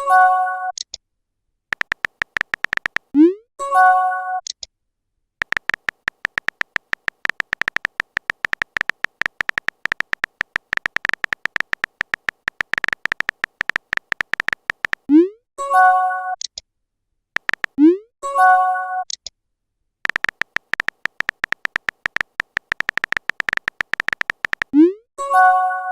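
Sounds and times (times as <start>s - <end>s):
phone keyboard typing clicks: 1.7s - 3.2s, 5.4s - 15.1s, 17.4s - 17.8s, 20.1s - 24.8s.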